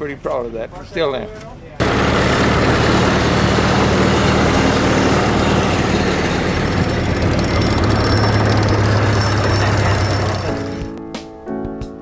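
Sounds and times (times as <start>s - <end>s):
dense mechanical noise: 1.8s - 11.0s
engine running loudly: 1.8s - 11.0s.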